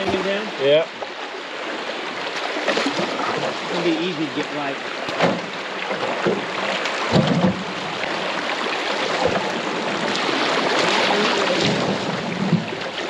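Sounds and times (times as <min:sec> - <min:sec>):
knocks on canoe: 0:00.0 - 0:00.4, 0:05.0 - 0:08.3, 0:08.9 - 0:10.2, 0:10.8 - 0:13.0
river water rushing: 0:00.0 - 0:13.0.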